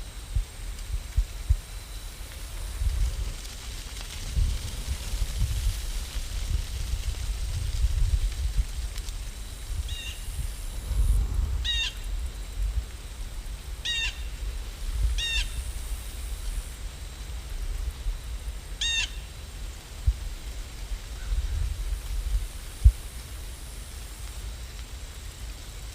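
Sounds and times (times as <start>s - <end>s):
steady low rumble: 0.0s - 18.8s.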